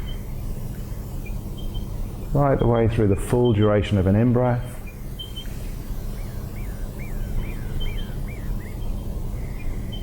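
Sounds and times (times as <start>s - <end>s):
bird singing looping notes: 0.0s - 10.0s
low rumble of background noise: 0.0s - 10.0s
high piping bird notes: 4.8s - 10.0s.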